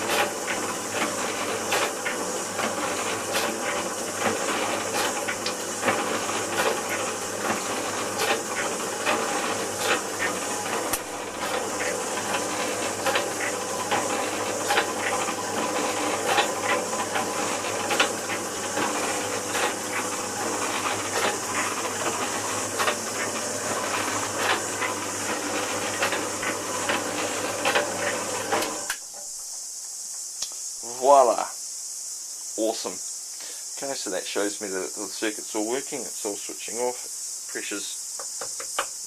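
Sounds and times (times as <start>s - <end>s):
pump clicks and knocks: 0.0s - 29.0s
pump hissing: 0.0s - 39.0s.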